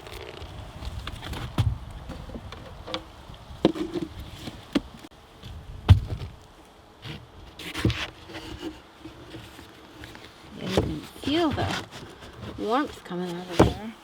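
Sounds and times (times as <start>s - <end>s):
rustling and scraping: 0.0s - 14.0s
knocks and clunks on wooden hive: 0.8s - 6.4s, 10.6s - 14.0s.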